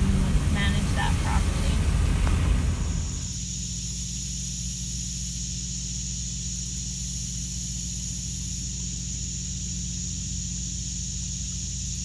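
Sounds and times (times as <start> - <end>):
engine idling: 0.0 - 3.3
steady high hiss: 0.0 - 12.0.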